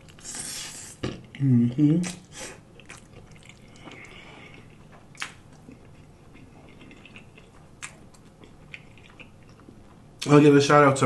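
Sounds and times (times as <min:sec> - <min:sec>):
wet chewing of spaghetti: 0:02.0 - 0:10.3.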